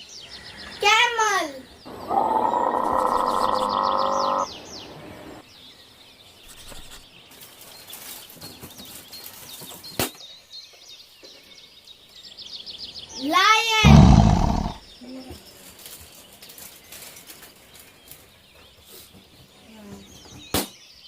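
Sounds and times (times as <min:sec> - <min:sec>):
birds chirping: 0:00.2 - 0:07.2, 0:12.4 - 0:15.2.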